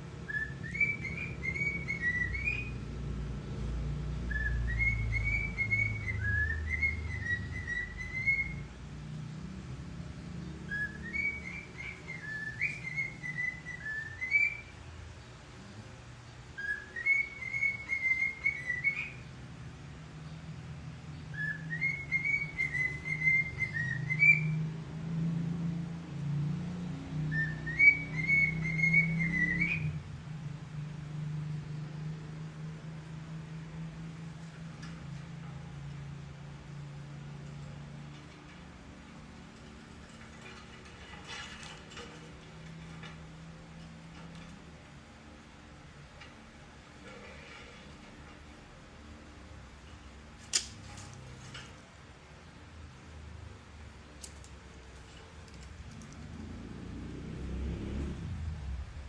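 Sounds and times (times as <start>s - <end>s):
cockatiel whistling a tune: 0.3s - 2.8s, 4.3s - 8.7s, 10.7s - 14.7s, 16.6s - 19.2s, 21.3s - 24.6s, 27.3s - 30.0s.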